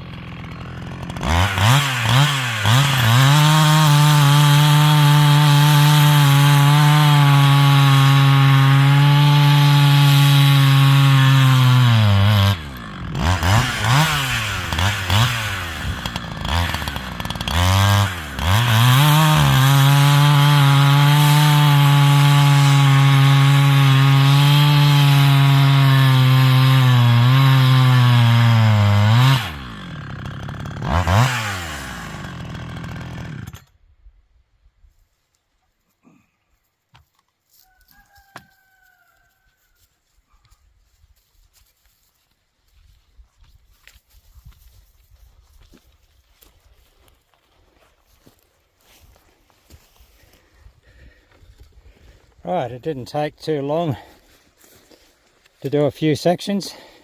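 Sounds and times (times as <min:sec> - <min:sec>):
chainsaw cutting log: 0:00.0 - 0:33.8, 0:49.8 - 0:51.2, 0:52.9 - 0:57.0.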